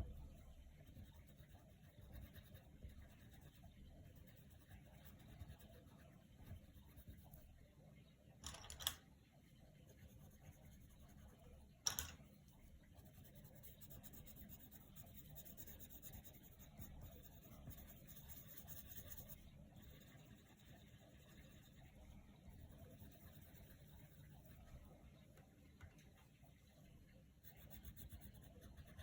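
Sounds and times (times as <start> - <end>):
pencil rubbing on paper: 13.0 - 24.6.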